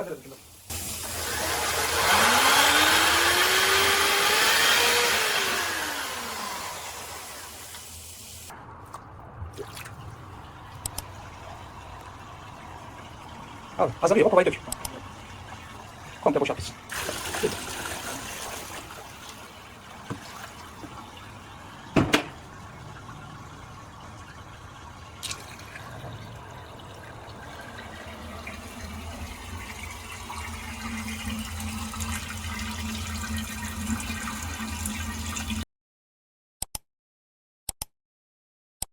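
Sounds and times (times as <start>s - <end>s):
water pouring down a drain: 0.5s - 35.6s
low steady hum: 8.1s - 34.6s.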